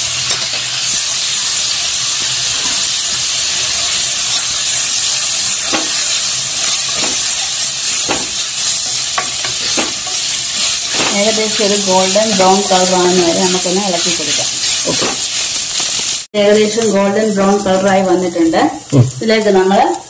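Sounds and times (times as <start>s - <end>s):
onions sizzling in hot oil: 0.0s - 20.0s
wooden spatula scraping pan: 5.5s - 16.1s.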